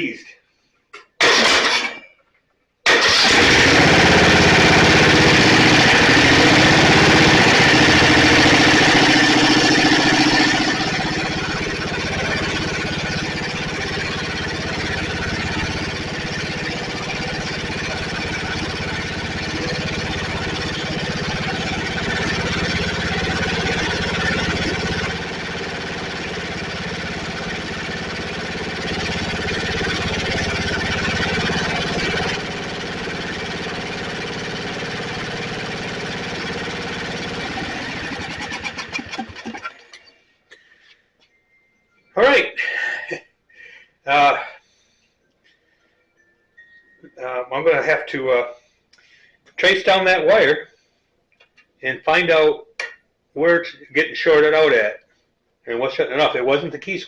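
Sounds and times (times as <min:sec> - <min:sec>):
riding mower engine running: 0:01.2 - 0:01.9, 0:02.9 - 0:40.1.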